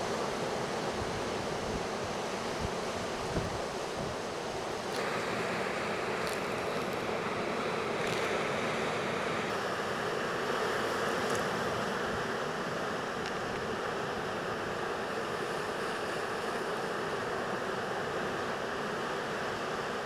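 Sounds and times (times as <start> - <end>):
wind on microphone: 1.0 - 4.4.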